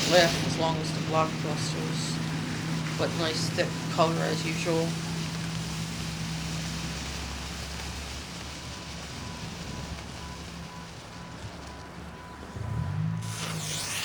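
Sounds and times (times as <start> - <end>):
steady low hum: 0.0 - 7.2
wind buffeting microphone: 0.0 - 13.2.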